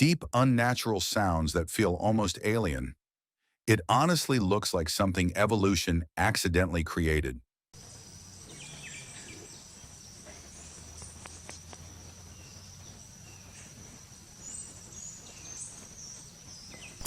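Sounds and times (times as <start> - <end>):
soft bird chirps: 7.8 - 17.0.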